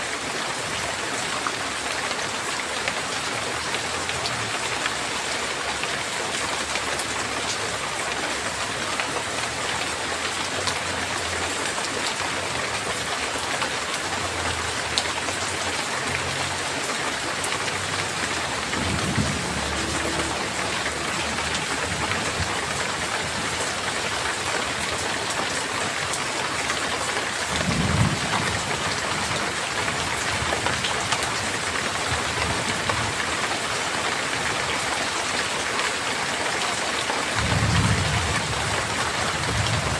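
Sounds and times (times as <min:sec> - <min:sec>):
heavy rain hissing: 0:02.6 - 0:33.7
low thunder rumbles: 0:18.6 - 0:23.4, 0:27.5 - 0:28.9, 0:37.4 - 0:39.9.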